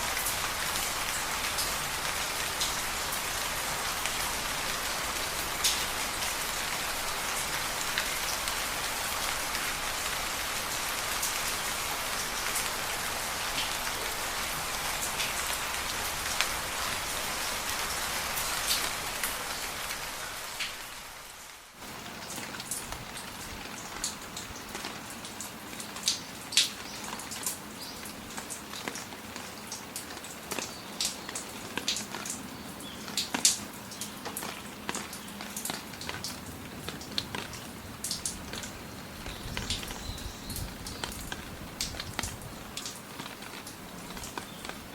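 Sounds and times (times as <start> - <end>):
steady rain falling: 0.0 - 44.9
water drops ticking and dripping: 33.0 - 44.8.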